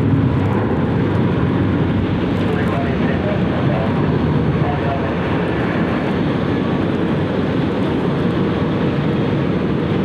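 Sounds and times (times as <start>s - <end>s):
jet airliner engines running: 0.0s - 10.0s.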